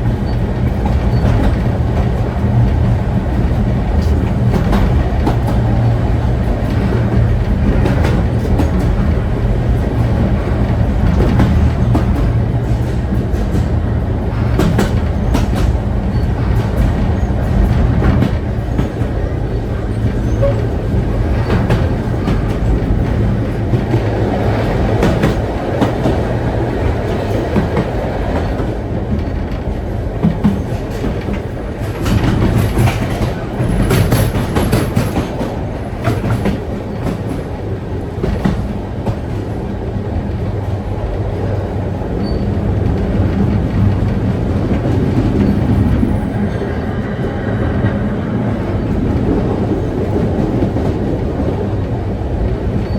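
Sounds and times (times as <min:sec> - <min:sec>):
wheels clicking over rail joints: 0:00.0 - 0:39.6
train carriage rumbling: 0:00.0 - 0:52.9.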